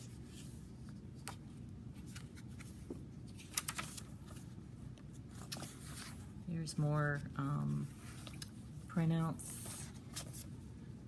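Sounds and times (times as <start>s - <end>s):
low background hum: 0.0s - 11.0s
paper pages rustling: 2.0s - 6.2s, 7.6s - 8.6s, 9.5s - 10.7s.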